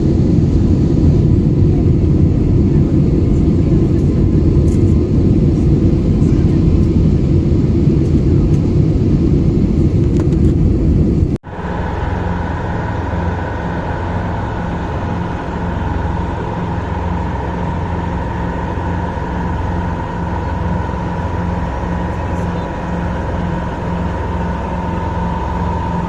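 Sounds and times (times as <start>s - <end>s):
machine hum: 9.3s - 26.0s
low pulsing note: 10.5s - 26.0s
ship rumble at sea: 10.6s - 26.0s.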